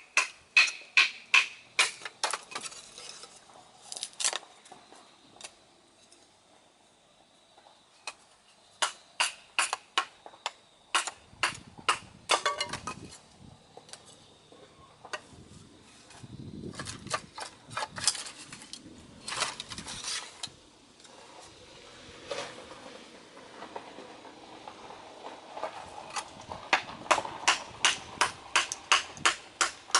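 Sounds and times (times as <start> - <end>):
sharp knocks and cracks: 0.0 - 2.8, 8.8 - 13.0, 26.1 - 29.9.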